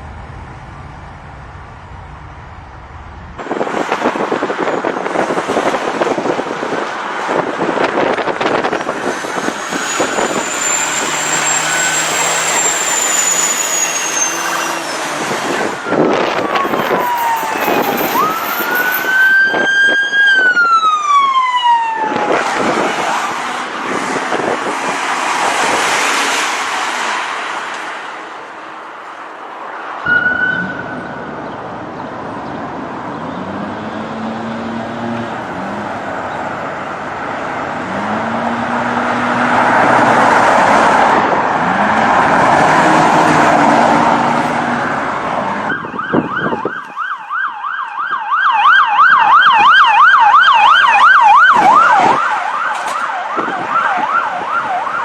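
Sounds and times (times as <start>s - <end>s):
road noise: 0.0s - 55.0s
siren fast yelp: 9.4s - 14.9s, 15.5s - 23.3s, 45.7s - 55.0s
police siren wailing: 9.4s - 24.8s, 43.0s - 55.0s
vehicle engine revving: 37.6s - 45.3s.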